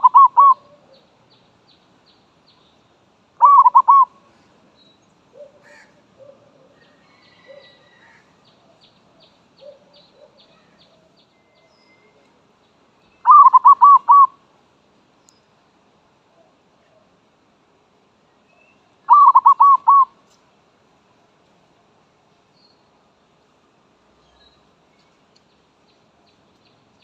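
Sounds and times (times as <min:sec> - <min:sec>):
dove cooing: 0:00.0 - 0:01.0, 0:03.4 - 0:04.2, 0:05.3 - 0:08.2, 0:09.6 - 0:10.5, 0:13.3 - 0:14.4, 0:19.1 - 0:20.2
faint high bird chirps: 0:00.0 - 0:04.1, 0:04.7 - 0:12.4, 0:13.0 - 0:14.4, 0:18.4 - 0:20.4, 0:24.2 - 0:27.0.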